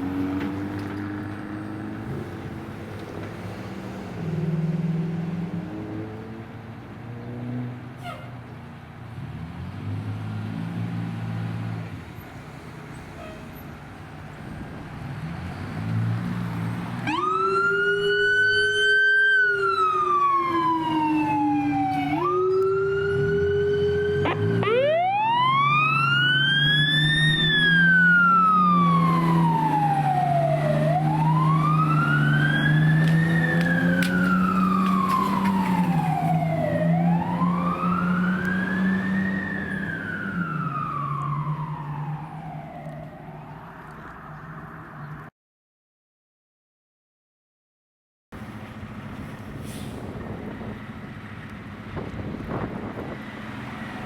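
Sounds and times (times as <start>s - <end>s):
vehicle engine drone: 0.0s - 45.3s
fire engine siren wailing: 16.2s - 44.4s.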